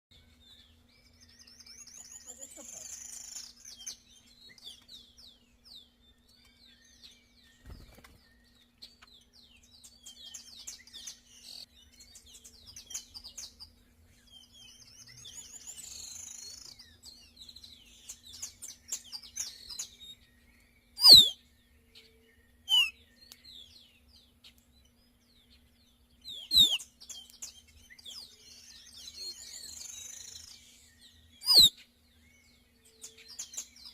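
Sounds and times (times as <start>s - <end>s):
birds chirping and chattering: 0.1s - 33.9s
loud downward-sliding bird calls: 21.0s - 21.4s, 22.7s - 23.0s, 26.3s - 26.8s, 31.4s - 31.7s.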